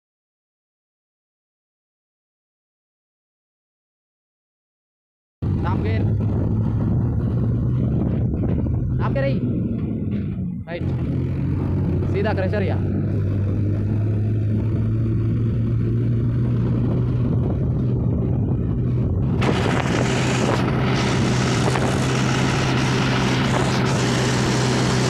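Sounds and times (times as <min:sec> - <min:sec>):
broad rushing noise: 0:05.4 - 0:25.0
tractor engine droning: 0:05.4 - 0:25.0.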